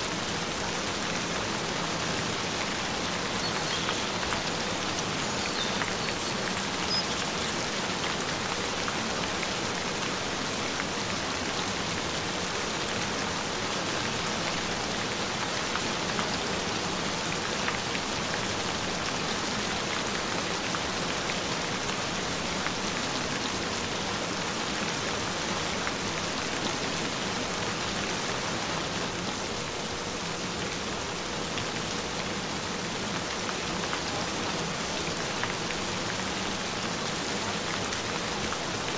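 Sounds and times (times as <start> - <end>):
gentle rain falling: 0.0 - 38.9.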